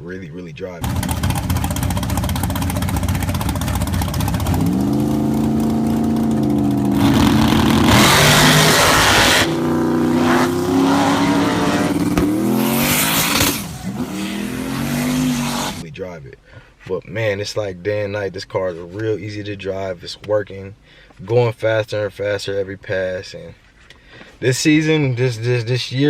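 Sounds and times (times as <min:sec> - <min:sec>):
race car engine revving: 0:00.8 - 0:15.8
loud rushing noise: 0:04.4 - 0:15.8.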